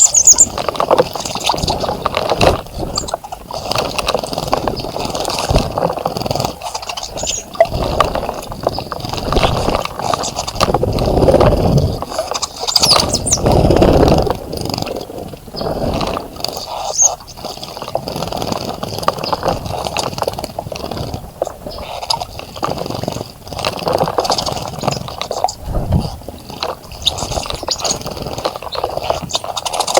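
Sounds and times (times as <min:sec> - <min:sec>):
high bird chirps: 0:00.0 - 0:00.5, 0:07.1 - 0:07.6, 0:12.7 - 0:13.5
birds splashing in water: 0:00.0 - 0:29.9.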